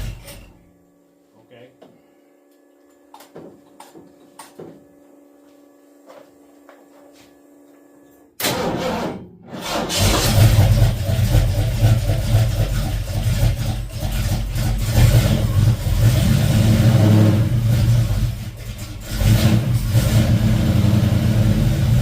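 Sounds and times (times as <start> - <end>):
car engine starting and running: 8.4 - 22.0.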